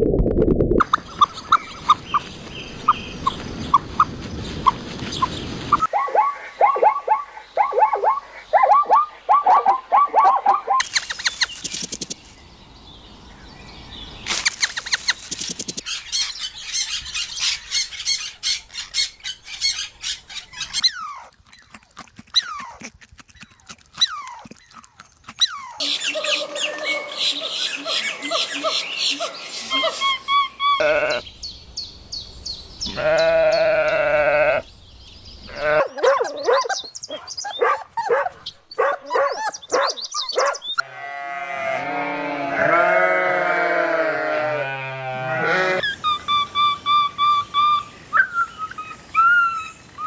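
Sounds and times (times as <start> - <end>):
high bird twittering: 10.7 - 21.2, 25.4 - 40.8
single bird chirps: 30.8 - 34.5.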